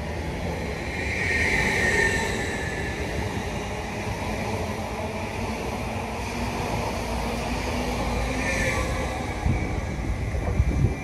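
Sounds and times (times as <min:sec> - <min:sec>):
high whine: 0:00.0 - 0:04.9
train rumbling along track: 0:00.0 - 0:11.0.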